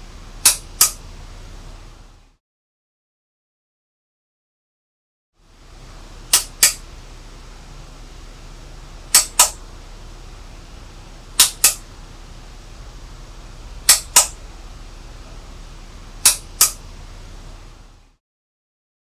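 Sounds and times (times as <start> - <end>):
sharp double clicks: 0.4 - 1.1, 6.3 - 6.9, 9.1 - 9.8, 11.4 - 11.9, 13.7 - 14.8, 16.2 - 16.9.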